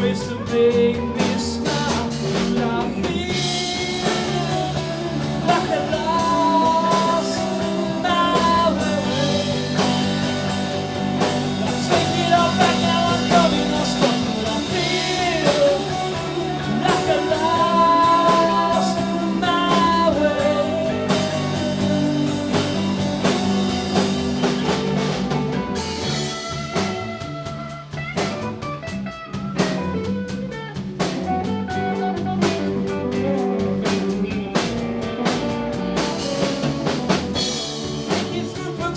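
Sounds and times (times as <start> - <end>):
drum kit: 0.0 - 38.9
live rock band playing: 0.0 - 38.9
melodic lead guitar line: 0.0 - 38.9.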